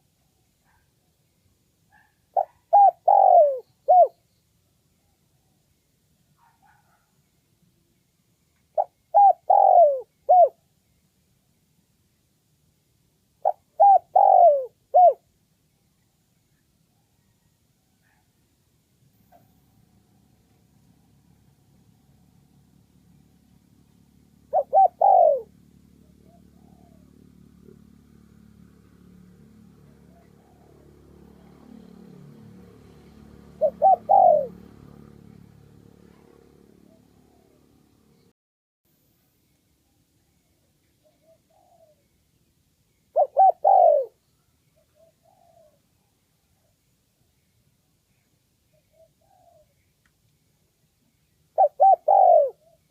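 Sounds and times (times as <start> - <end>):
dove cooing: 1.9 - 4.2, 8.7 - 10.7, 13.4 - 15.3, 24.0 - 27.9, 29.8 - 31.8, 33.3 - 35.3, 36.1 - 37.8, 41.0 - 42.1, 43.1 - 44.2, 44.8 - 46.7, 48.8 - 49.8, 51.6 - 52.9.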